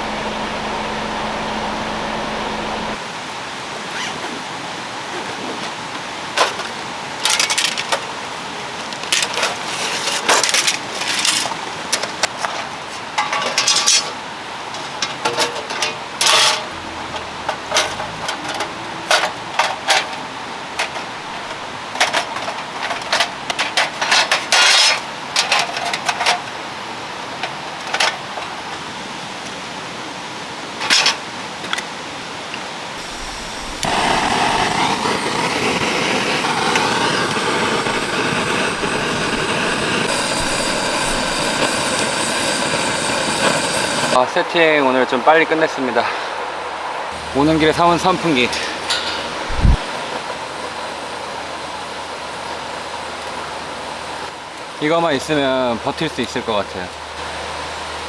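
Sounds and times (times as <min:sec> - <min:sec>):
steady hiss of water: 0:33.0 - 0:44.8, 0:45.6 - 0:51.4.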